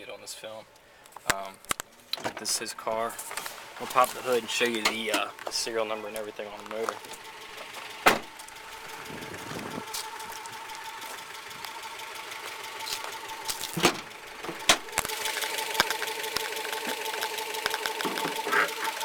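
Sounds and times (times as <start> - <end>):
car engine idling roughly: 2.8 - 19.0
sharp engine clacks: 3.8 - 19.0.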